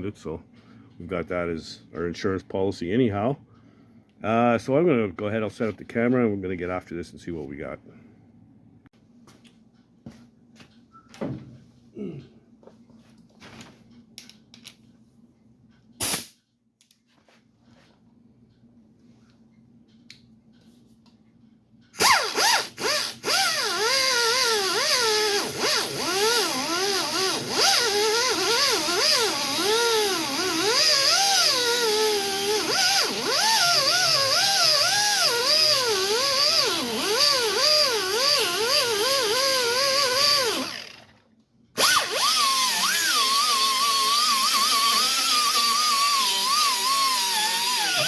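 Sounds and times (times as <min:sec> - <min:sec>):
angle grinder grinding: 0:22.0 - 0:41.2, 0:41.8 - 0:48.0.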